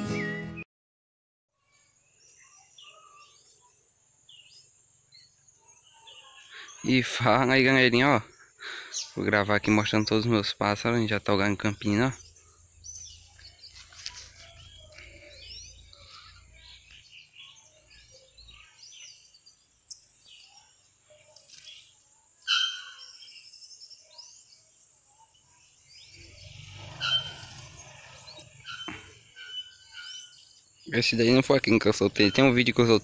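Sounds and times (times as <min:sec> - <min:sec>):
small birds chirping: 0:01.6 - 0:33.0.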